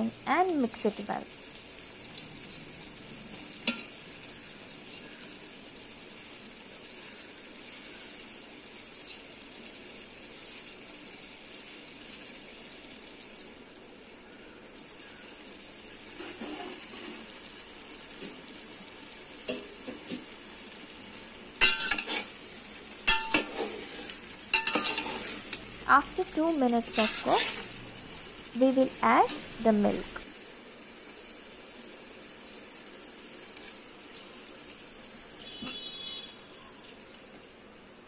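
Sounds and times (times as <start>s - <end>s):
food sizzling in a pot: 0.0s - 38.0s
spoon scraping and clinking pot: 21.6s - 22.3s, 23.1s - 25.6s, 26.9s - 27.7s.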